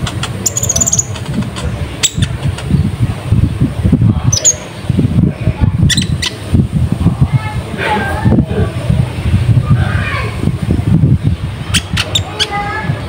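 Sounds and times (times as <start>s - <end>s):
songbird chirps and clicks: 0.0s - 2.7s.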